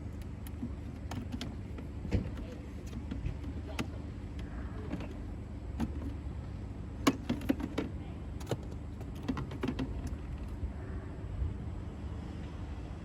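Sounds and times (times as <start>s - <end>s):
low steady rumble: 0.0s - 13.0s
plastic bucket knocks and clacks: 0.4s - 6.2s, 7.0s - 10.4s.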